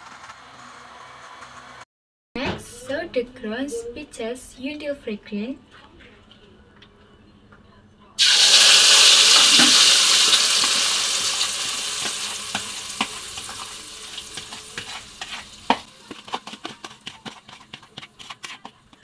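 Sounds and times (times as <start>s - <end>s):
paste sizzling in hot oil: 8.2s - 19.0s.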